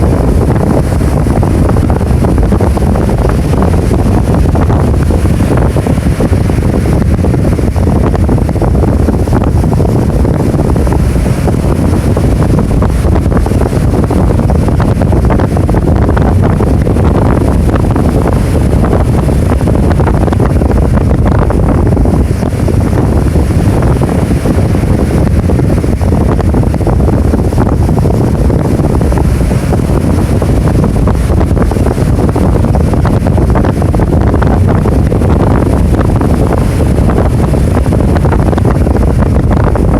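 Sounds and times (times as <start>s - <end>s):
rough surf crashing: 0.0s - 39.9s
wind buffeting microphone: 0.0s - 39.9s.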